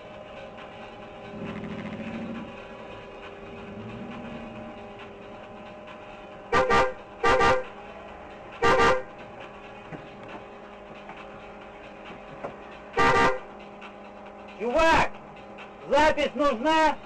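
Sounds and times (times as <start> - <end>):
steady low drone: 0.0 - 17.0
car horn blasts: 6.5 - 7.8, 8.6 - 9.1, 13.0 - 13.5.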